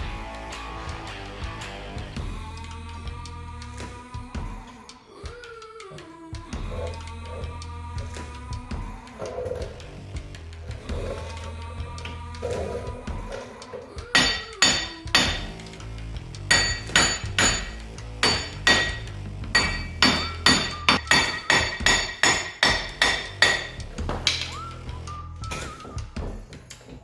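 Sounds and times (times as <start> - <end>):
background music: 0.0 - 27.0
hammer striking steel: 14.2 - 15.6, 16.5 - 24.5.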